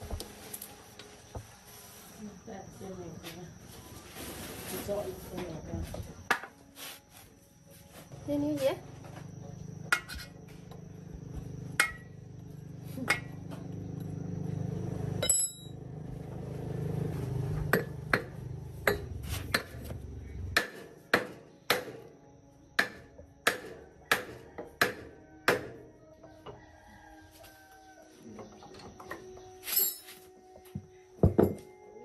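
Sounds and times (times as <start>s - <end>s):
hammer striking metal: 11.8s - 12.1s, 20.6s - 22.0s.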